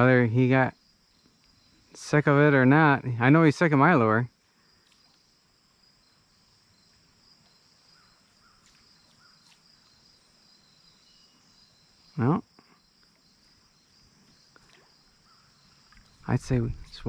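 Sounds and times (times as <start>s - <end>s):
crickets chirping: 0.0s - 17.0s
faint ticks: 1.2s - 1.6s, 4.8s - 5.3s, 14.2s - 14.9s, 15.8s - 16.3s.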